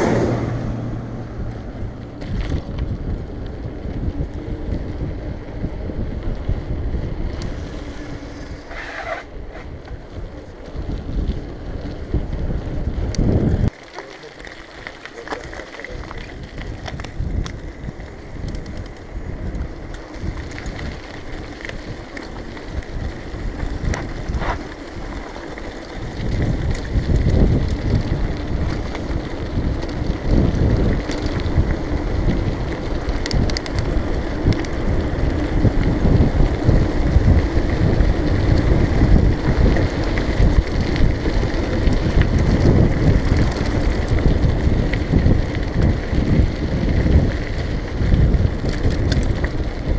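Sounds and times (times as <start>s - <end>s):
wind buffeting microphone: 0.0s - 13.8s, 15.4s - 49.9s
bicycle tyre noise: 0.0s - 49.9s
small knocks from bike: 48.6s - 49.6s.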